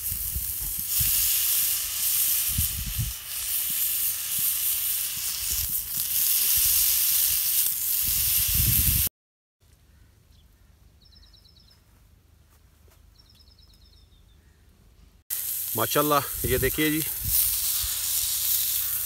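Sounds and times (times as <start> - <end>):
meat sizzling on grill pan: 0.0 - 9.1, 15.3 - 19.0.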